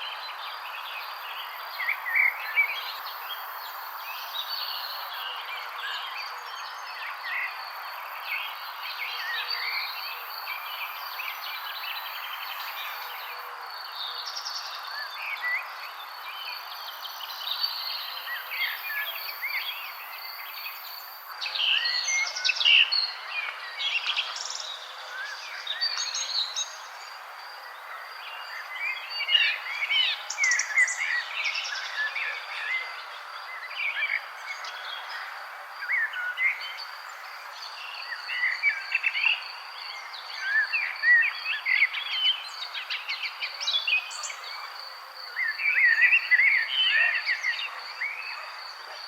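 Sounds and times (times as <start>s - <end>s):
steady background hiss: 0.1s - 5.9s.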